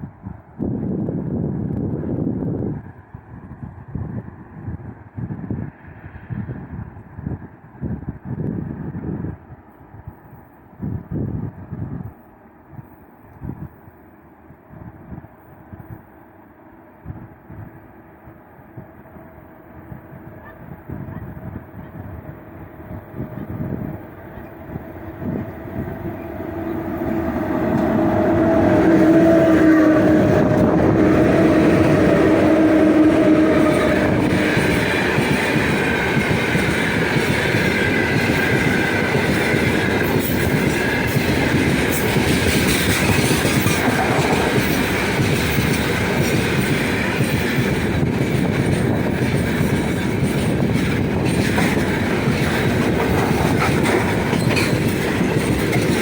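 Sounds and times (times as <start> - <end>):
locomotive low whine: 18.8 - 37.0
wagon wheels clattering on rails: 34.3 - 56.0.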